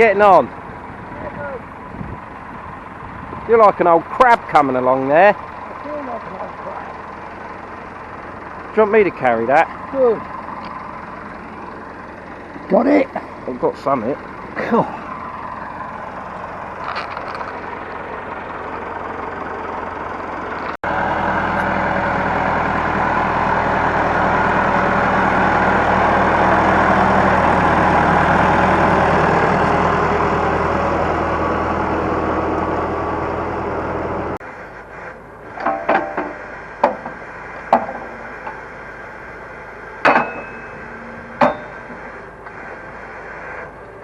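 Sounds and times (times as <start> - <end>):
engine droning: 0.0 - 44.0.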